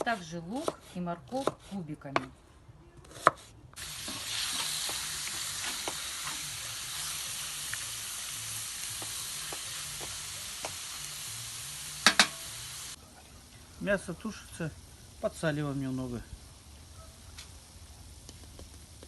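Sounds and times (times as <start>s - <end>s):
meat sizzling in oil: 3.8s - 16.9s.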